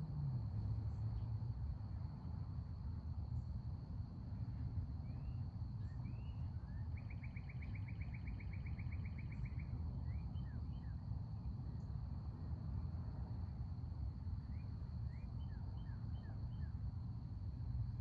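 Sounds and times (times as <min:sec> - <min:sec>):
faint insect hum: 0:00.0 - 0:18.0
low outdoor rumble: 0:00.0 - 0:18.0.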